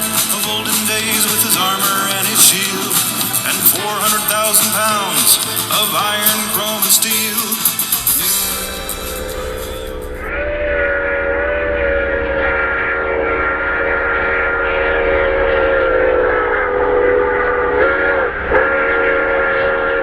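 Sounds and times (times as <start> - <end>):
steam hiss: 0.0 - 10.3
steam locomotive chime whistle: 8.0 - 20.0.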